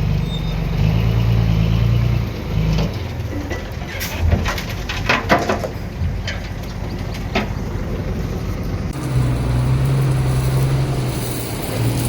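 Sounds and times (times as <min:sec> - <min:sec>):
heavy machinery rumbling: 0:00.0 - 0:12.0
clanks and rattles: 0:02.6 - 0:07.8.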